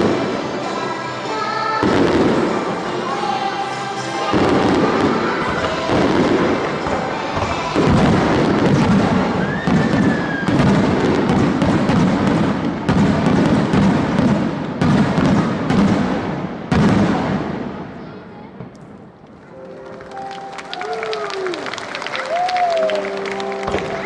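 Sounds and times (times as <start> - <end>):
music playing: 0.0 - 13.6, 19.3 - 24.0
fireworks crackling: 0.0 - 24.0
fireworks booms: 1.8 - 2.8, 4.2 - 19.1
firework whistle: 9.3 - 11.3.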